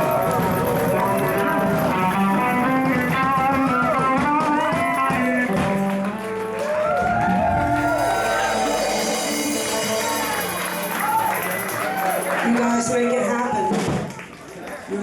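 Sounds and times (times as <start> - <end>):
lead guitar bending notes: 0.0 - 11.3
steady bass line: 0.0 - 12.4.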